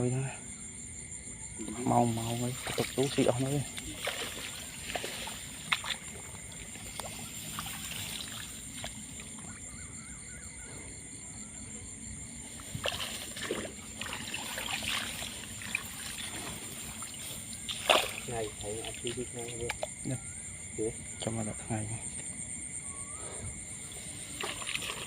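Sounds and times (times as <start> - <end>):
small splashes and knocks: 1.6 - 9.8, 12.4 - 20.2, 23.9 - 25.0
water sloshing and trickling: 1.6 - 22.7, 23.4 - 25.0.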